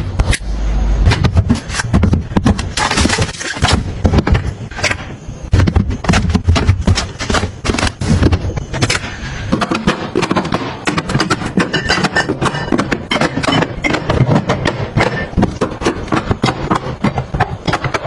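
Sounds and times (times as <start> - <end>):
containers clacking and knocking: 9.5 - 18.0.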